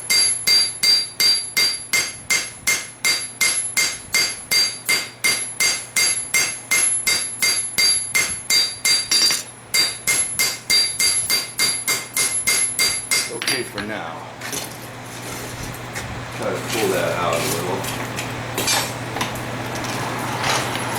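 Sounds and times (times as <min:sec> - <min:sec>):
hammer striking metal on anvil: 0:00.0 - 0:13.9.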